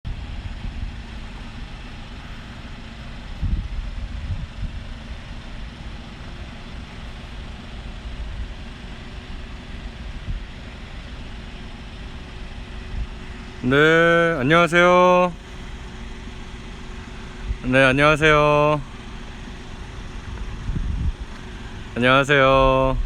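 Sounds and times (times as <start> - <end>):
passing traffic: 0.1 - 23.0
wind buffeting microphone: 3.1 - 6.2, 7.2 - 11.4, 12.5 - 13.4, 17.1 - 23.0.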